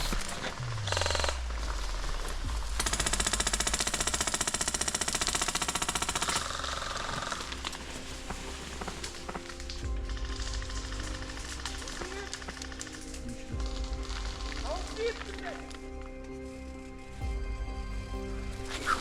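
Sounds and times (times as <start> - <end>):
airsoft gun full-auto burst: 2.8 - 7.4.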